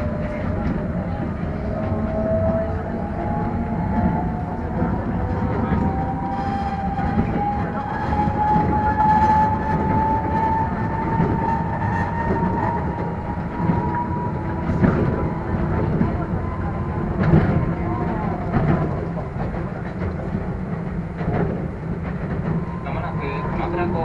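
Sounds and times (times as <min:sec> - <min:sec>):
electric train rumble and rattle: 0:00.0 - 0:24.0.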